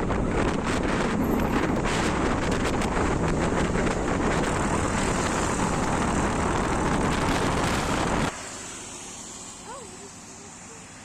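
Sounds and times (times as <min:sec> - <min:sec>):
wind rushing over microphone: 0:00.0 - 0:08.4.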